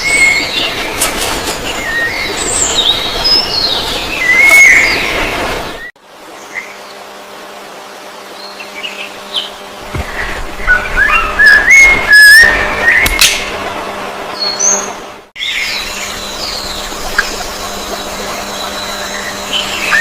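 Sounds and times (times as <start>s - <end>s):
songbirds chirping and whistling: 0.0s - 7.0s, 8.3s - 13.5s, 14.3s - 20.0s.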